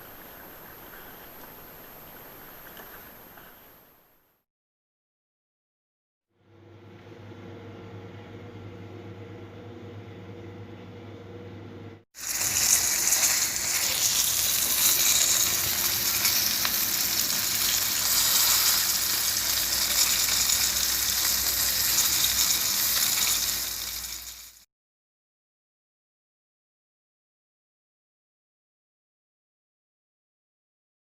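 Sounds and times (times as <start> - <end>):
fish sizzling in hot oil: 12.2 - 24.6.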